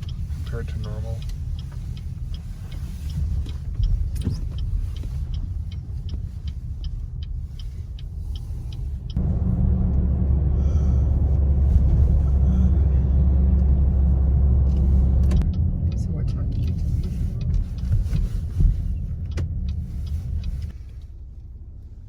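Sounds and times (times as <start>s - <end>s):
light regular ticking: 0.0s - 9.3s, 13.4s - 21.2s
car road and engine rumble: 0.0s - 22.0s.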